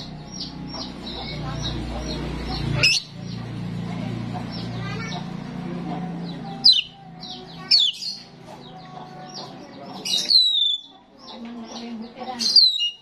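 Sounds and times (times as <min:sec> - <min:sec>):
starling chatter: 0:00.0 - 0:13.0.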